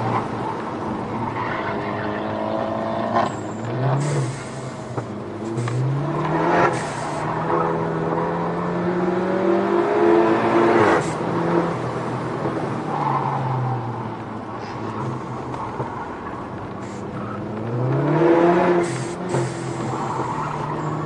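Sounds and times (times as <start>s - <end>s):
car engine revving in cabin: 17.1s - 21.0s.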